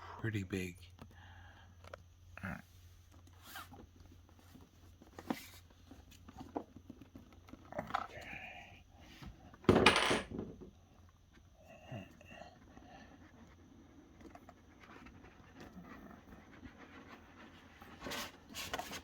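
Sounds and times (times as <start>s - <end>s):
scraping rustle of packaging: 14.4s - 19.0s.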